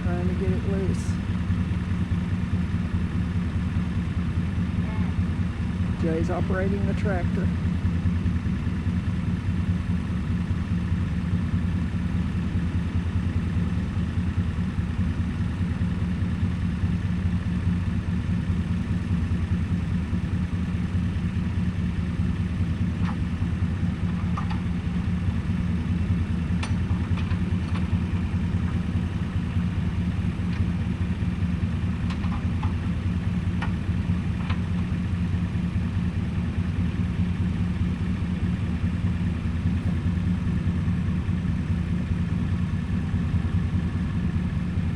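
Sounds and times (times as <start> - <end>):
tractor engine idling: 0.0 - 44.9.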